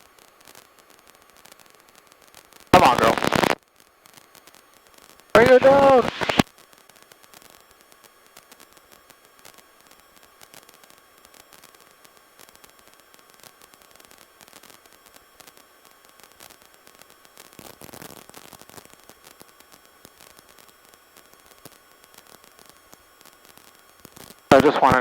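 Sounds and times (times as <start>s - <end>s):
crackling clicks: 2.8s - 3.6s, 5.4s - 6.4s, 24.5s - 25.0s
faint intercom static hiss: 2.8s - 3.6s, 5.4s - 6.4s, 24.5s - 25.0s.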